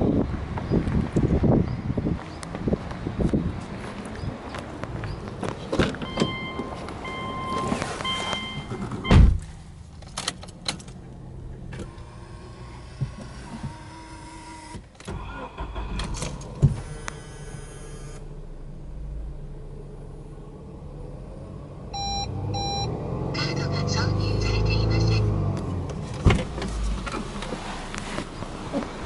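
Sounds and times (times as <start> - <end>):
car engine starting and idling: 4.8 - 29.0
short beeps: 6.0 - 9.2, 21.9 - 23.0
thump: 8.8 - 9.5.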